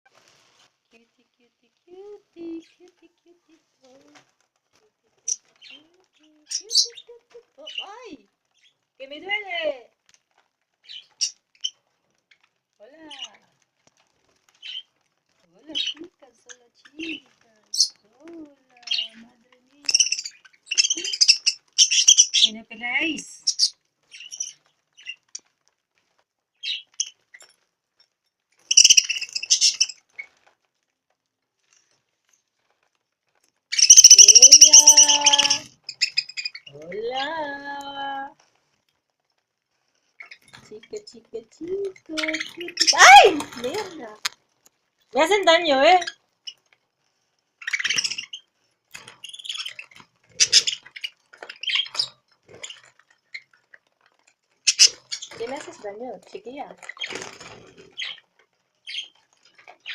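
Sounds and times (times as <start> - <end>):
small birds chirping: 0.2 - 30.8, 31.5 - 59.9
harsh bird calls: 18.8 - 25.2, 28.7 - 30.0, 33.7 - 38.2, 41.6 - 44.2, 47.6 - 53.5, 54.7 - 55.8.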